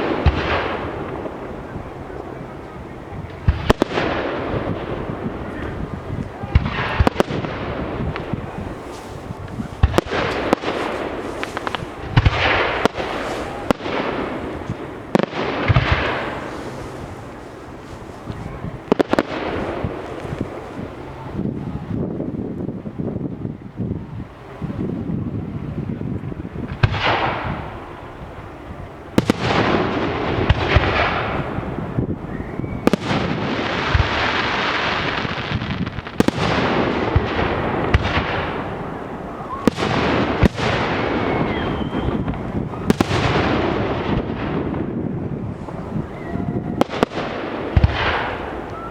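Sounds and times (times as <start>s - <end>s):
fireworks bursting with bangs: 0.0s - 22.4s, 26.6s - 28.5s, 29.1s - 48.9s
hiss of burning fireworks: 0.0s - 48.9s.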